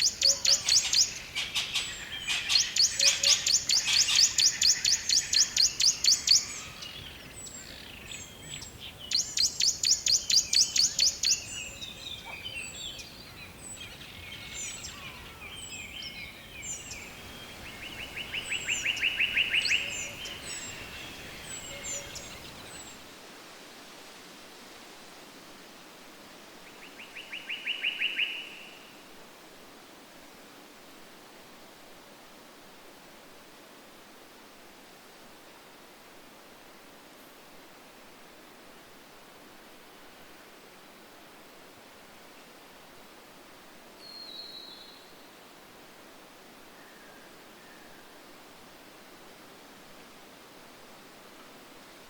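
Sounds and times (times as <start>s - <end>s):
songbirds trilling and chirping: 0.0s - 23.0s
faint steady hiss: 0.0s - 52.0s.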